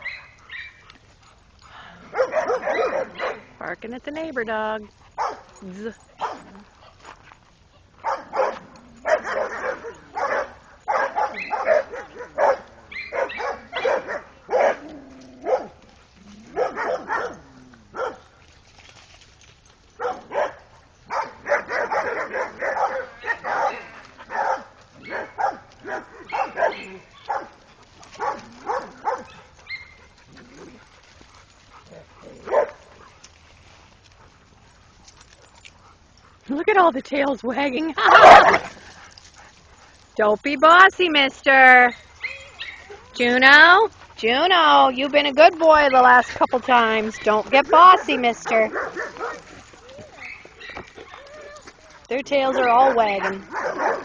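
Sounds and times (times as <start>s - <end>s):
dogs barking: 0.0s - 3.6s, 5.0s - 5.6s, 6.2s - 6.6s, 8.0s - 18.3s, 19.9s - 33.2s, 38.0s - 39.9s, 47.1s - 54.0s.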